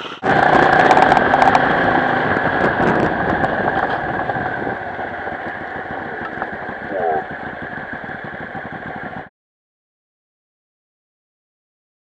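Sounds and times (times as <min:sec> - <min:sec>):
motorcycle engine running: 0:00.0 - 0:09.3.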